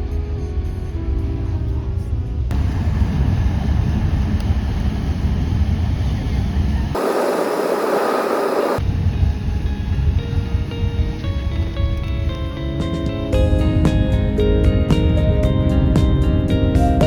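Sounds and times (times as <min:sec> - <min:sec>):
car road and engine rumble: 0:02.5 - 0:08.8
loud hiss: 0:07.0 - 0:08.8.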